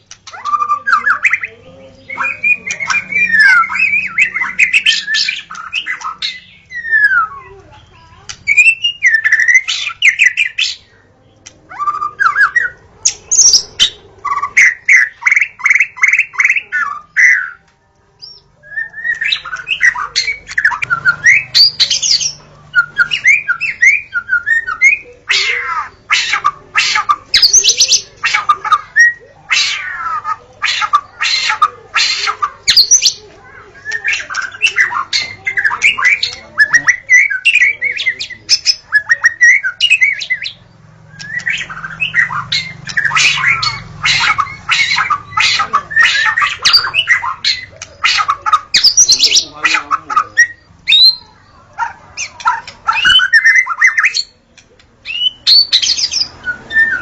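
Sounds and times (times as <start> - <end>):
harsh chattering bird calls: 0.0 - 57.0
songbird singing whistles: 2.1 - 7.6, 8.4 - 10.9, 11.7 - 17.6, 18.2 - 33.2, 33.8 - 49.5, 50.4 - 51.4, 52.2 - 54.3, 55.0 - 57.0.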